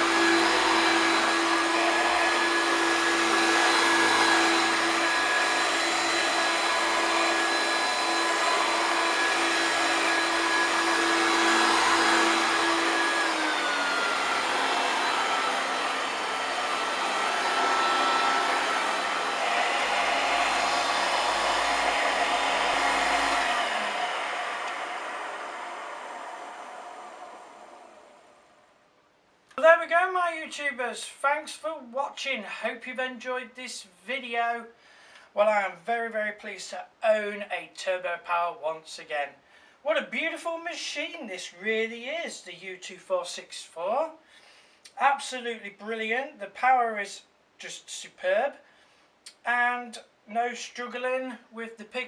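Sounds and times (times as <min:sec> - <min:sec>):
vacuum cleaner motor whine: 0:00.0 - 0:28.7.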